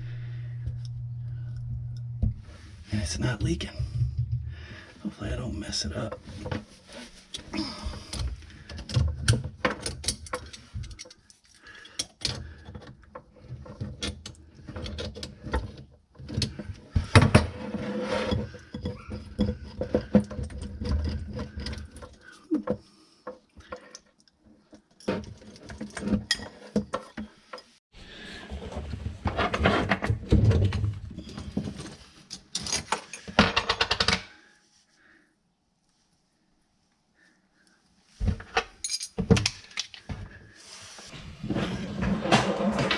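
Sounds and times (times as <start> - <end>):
metallic clicks and rattles of tools: 8.1 - 15.6.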